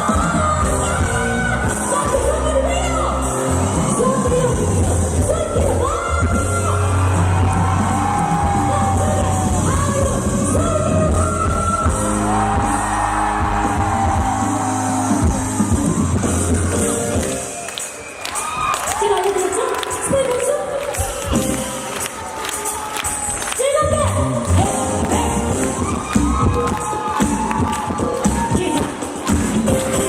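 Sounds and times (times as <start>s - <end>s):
woman singing: 0.0s - 6.9s, 7.9s - 12.8s, 23.6s - 25.8s
backing track with bass: 0.0s - 17.6s, 23.8s - 30.0s.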